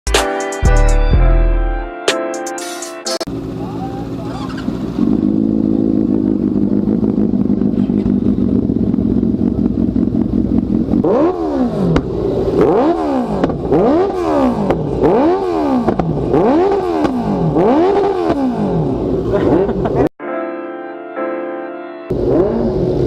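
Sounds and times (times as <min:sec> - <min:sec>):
motorcycle engine idling and revving: 0:03.2 - 0:20.1, 0:22.1 - 0:23.0.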